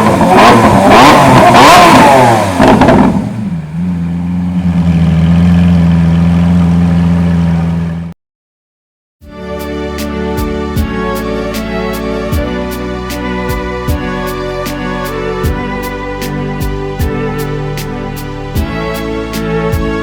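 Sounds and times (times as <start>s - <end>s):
exhaust crackles: 0.0s - 8.1s
car engine revving and idling: 0.0s - 8.2s.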